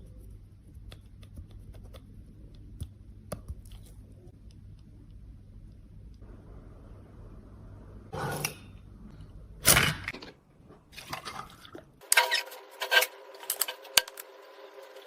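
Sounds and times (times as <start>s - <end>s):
small tools clicking and scraping: 12.0s - 14.3s.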